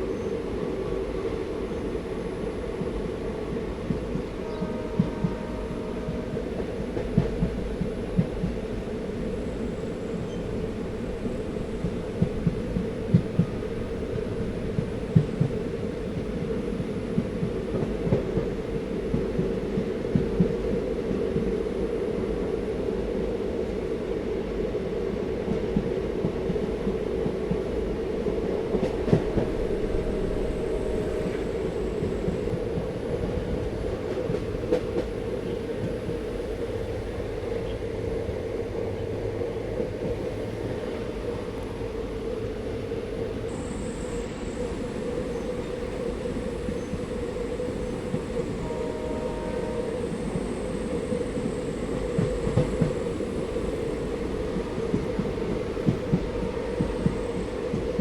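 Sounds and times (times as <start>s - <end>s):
train wheels rumbling on rails: 0.0s - 58.0s
train knock: 3.9s - 8.6s, 11.7s - 20.6s, 28.4s - 36.3s, 48.0s - 58.0s.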